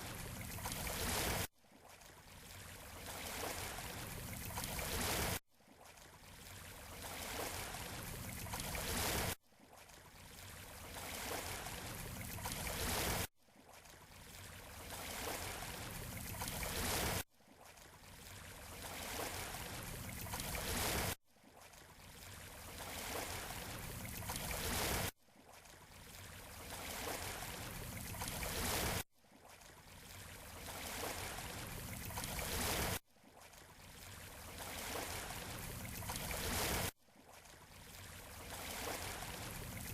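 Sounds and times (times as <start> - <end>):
waves rushing on beach: 34.6 - 36.9, 38.4 - 39.9.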